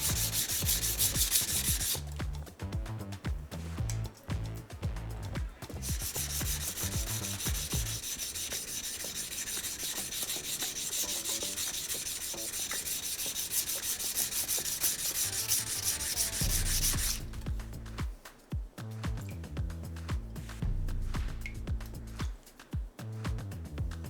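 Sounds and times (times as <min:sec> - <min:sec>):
knife scraped on whetstone: 0:05.9 - 0:17.2.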